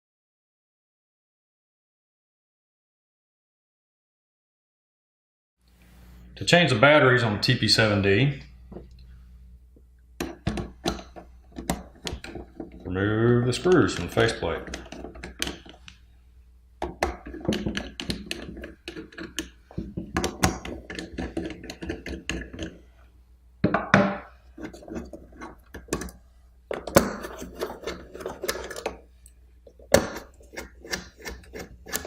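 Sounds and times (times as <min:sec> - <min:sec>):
screwdriver clicking and scraping: 0:13.6 - 0:16.0, 0:16.9 - 0:22.8, 0:24.5 - 0:32.0.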